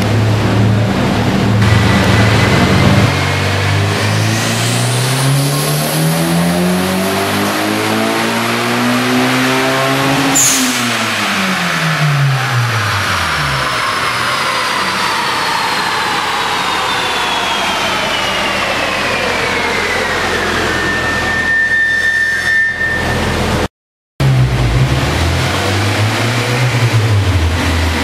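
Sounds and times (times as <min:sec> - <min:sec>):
car engine accelerating: 0:00.0 - 0:21.6, 0:23.0 - 0:28.0
turbo whistle: 0:14.0 - 0:23.7.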